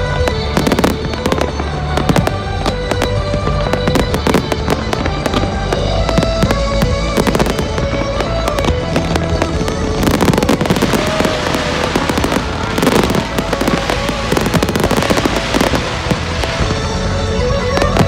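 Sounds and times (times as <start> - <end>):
firework bangs and crackling: 0.0 - 18.0
music playing: 0.0 - 18.0
dense hissing crackle: 9.4 - 18.0.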